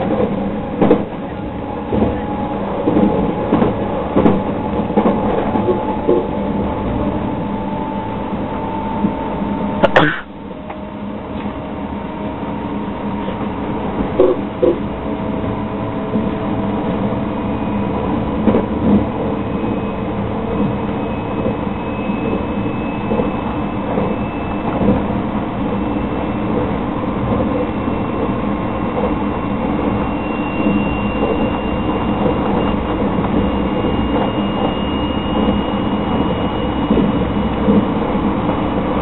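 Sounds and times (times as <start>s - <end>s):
train wheels rumbling on rail: 0.0s - 39.0s
faint high whine: 29.4s - 38.1s.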